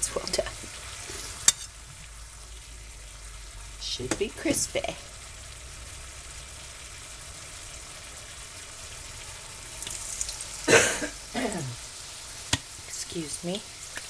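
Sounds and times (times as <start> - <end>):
tortilla sizzling in a pan: 0.0 - 14.0
person coughing loudly: 10.7 - 11.8.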